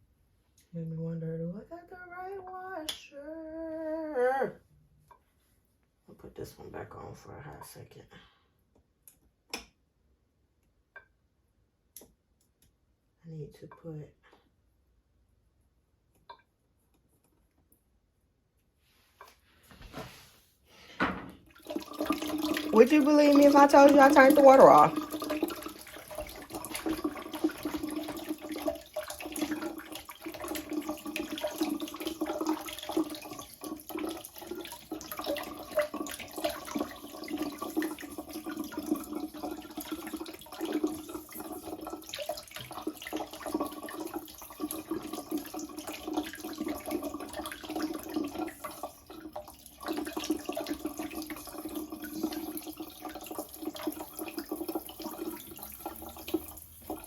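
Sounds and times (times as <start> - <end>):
faucet water running into sink: 21.0 - 57.0.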